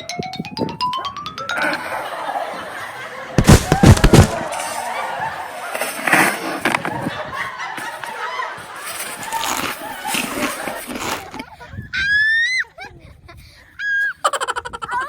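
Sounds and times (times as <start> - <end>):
loud bangs: 3.4 - 4.6.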